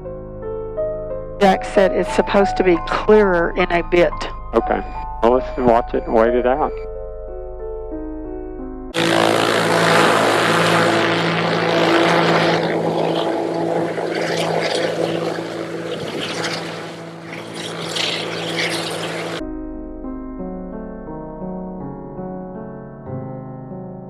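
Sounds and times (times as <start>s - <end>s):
propeller plane engine droning: 1.4s - 6.8s, 8.9s - 19.4s
wide rushing noise: 9.0s - 19.4s.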